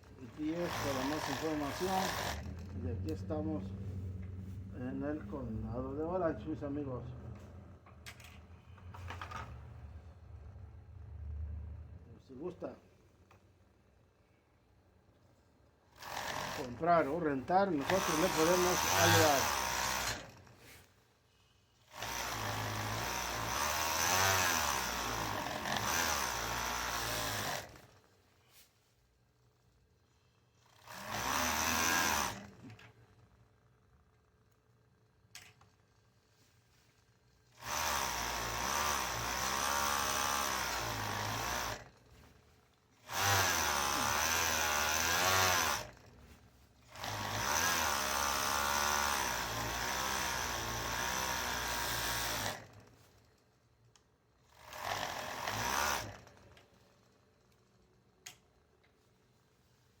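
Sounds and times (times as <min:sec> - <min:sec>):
electric sewing machine running: 0:00.3 - 0:02.8, 0:15.9 - 0:16.8, 0:17.7 - 0:20.5, 0:21.9 - 0:28.0, 0:30.7 - 0:32.9, 0:37.5 - 0:42.0, 0:43.0 - 0:46.1, 0:46.8 - 0:52.8, 0:54.5 - 0:56.5.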